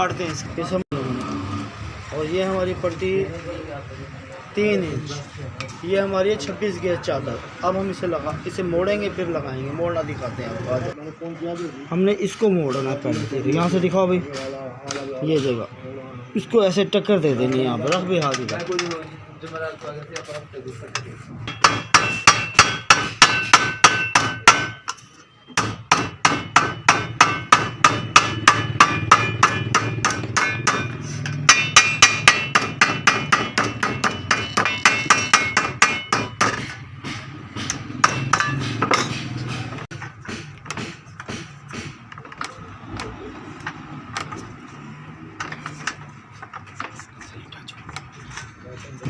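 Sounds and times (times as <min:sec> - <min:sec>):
hammer beating sheet metal: 0:21.5 - 0:42.1.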